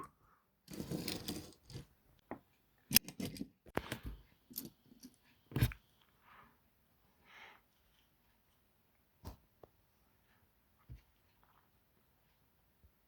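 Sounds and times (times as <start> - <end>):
toy train rolling and rattling: 0.7 - 1.9.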